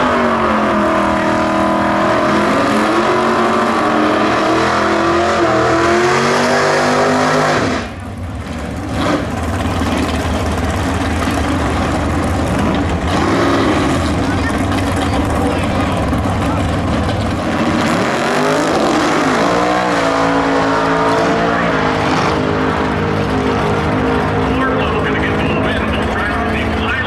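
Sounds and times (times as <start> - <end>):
muscle car engine revving: 0.0 - 27.0
low engine rumble: 7.9 - 18.0, 22.4 - 27.0.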